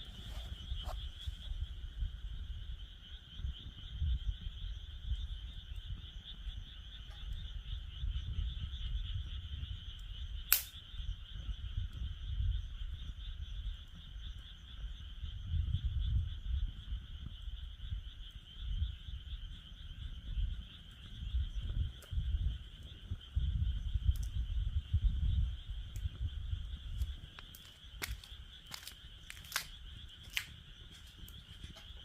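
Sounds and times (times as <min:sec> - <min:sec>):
frogs calling: 0:00.0 - 0:32.0
campfire pop: 0:10.5 - 0:10.9, 0:21.6 - 0:26.4, 0:27.0 - 0:32.0.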